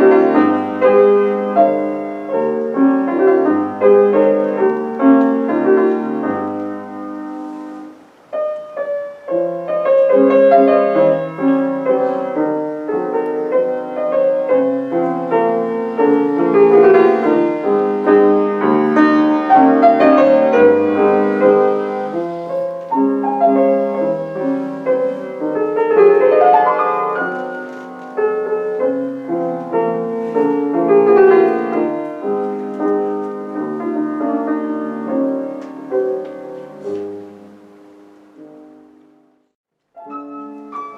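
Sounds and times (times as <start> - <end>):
classical piano piece: 0.0 - 40.9.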